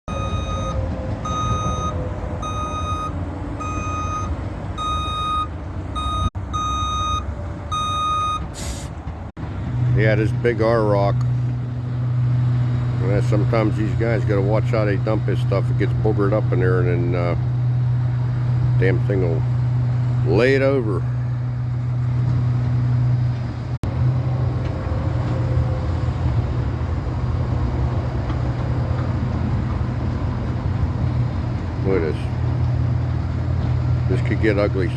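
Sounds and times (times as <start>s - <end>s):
truck back-up alarm beeping: 0.1s - 8.9s
diesel engine rumbling: 0.1s - 34.9s.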